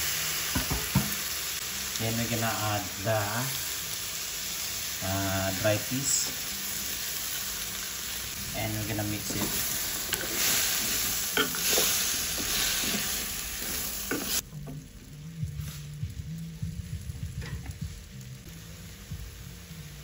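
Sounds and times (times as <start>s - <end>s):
vegetables sizzling in a wok: 0.0s - 20.0s
spatula scraping a pan: 9.3s - 14.4s.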